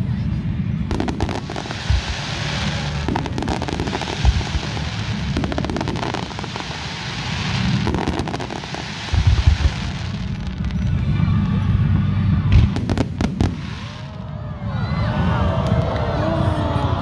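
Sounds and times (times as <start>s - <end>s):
rapid fireworks crackling: 0.0s - 16.9s
fireworks thumps: 0.9s - 6.7s, 7.8s - 10.1s
fireworks hiss: 0.9s - 10.8s, 12.7s - 14.1s.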